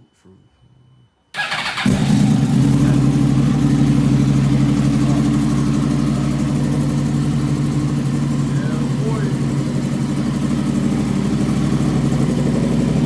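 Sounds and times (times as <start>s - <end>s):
motorcycle starter cranking: 1.4s - 3.3s
motorcycle engine idling: 1.4s - 13.0s.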